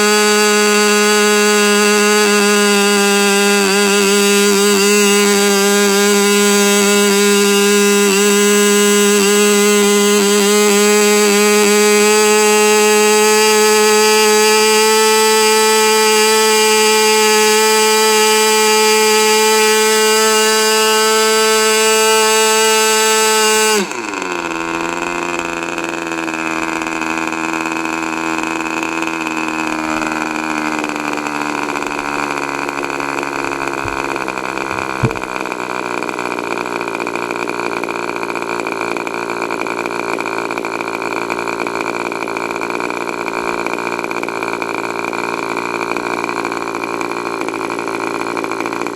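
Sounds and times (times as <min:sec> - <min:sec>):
model glow engine whining: 0:00.0 - 0:36.1.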